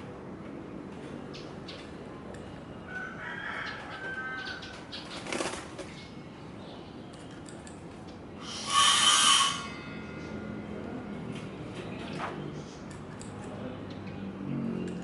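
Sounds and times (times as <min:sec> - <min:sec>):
loud bird call: 0:08.4 - 0:09.8.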